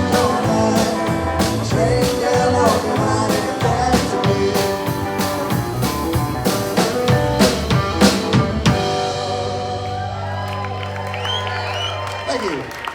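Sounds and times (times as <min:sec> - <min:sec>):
drum hits: 0:00.0 - 0:09.6
live rock band: 0:00.0 - 0:12.8.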